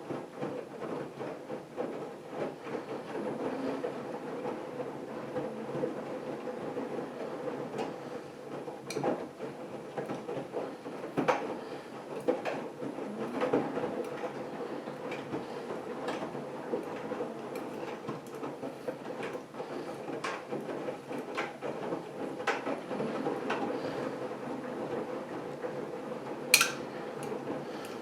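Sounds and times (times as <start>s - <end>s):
washing machine motor hum: 0.0s - 28.0s
washing machine clicks: 26.6s - 26.9s.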